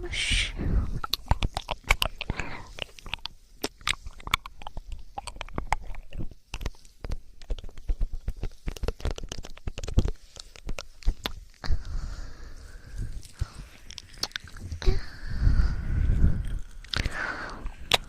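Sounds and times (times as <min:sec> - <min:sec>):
sticky wet clicks and crackles: 0:00.9 - 0:11.9, 0:13.2 - 0:14.9, 0:16.4 - 0:18.0.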